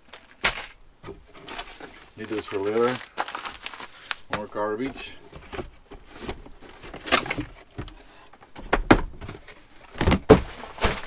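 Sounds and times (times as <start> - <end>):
packaging knocks: 0.0 - 7.9
packaging rustling: 0.0 - 8.0, 9.2 - 11.0.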